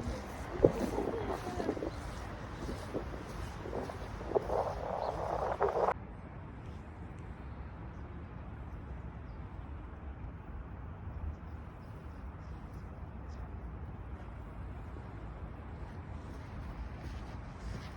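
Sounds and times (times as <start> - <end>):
wind rustling grass: 0.0 - 6.0.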